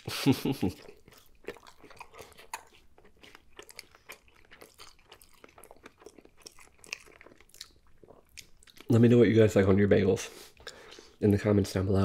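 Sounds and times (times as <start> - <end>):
person chewing food: 0.4 - 9.0, 10.4 - 11.2.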